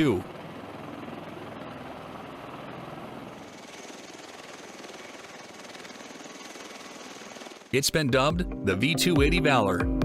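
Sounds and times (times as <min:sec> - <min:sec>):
high turbine whine: 0:00.0 - 0:07.8
helicopter rotors beating: 0:00.0 - 0:09.6.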